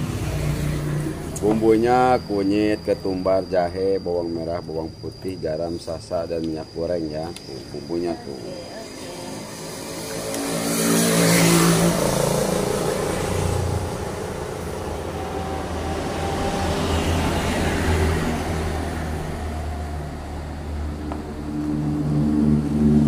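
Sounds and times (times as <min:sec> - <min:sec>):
motor engine humming: 0:07.4 - 0:23.0.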